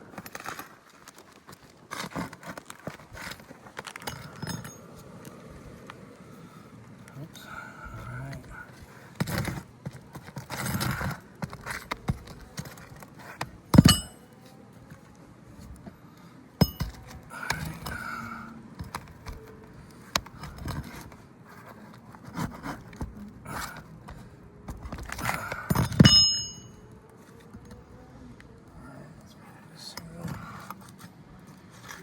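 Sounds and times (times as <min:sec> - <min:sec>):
metal tool striking nails: 0:13.7 - 0:14.2, 0:16.6 - 0:17.1, 0:25.2 - 0:26.8.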